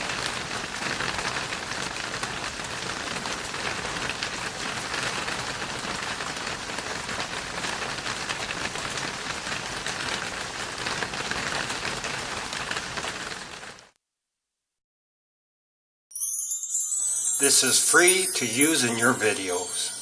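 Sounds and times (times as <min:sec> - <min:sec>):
hailstones clattering: 0:00.0 - 0:13.8.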